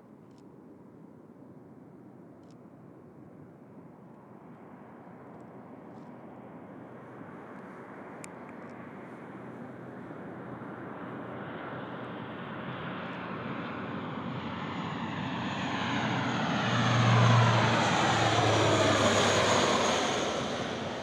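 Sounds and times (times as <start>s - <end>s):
airplane passing overhead: 8.8s - 21.0s.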